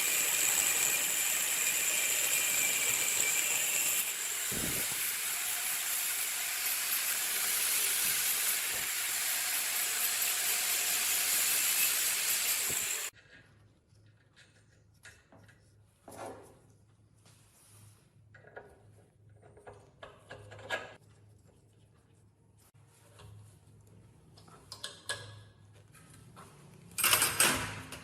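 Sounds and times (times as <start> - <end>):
compressed air hissing: 4.1 - 5.2.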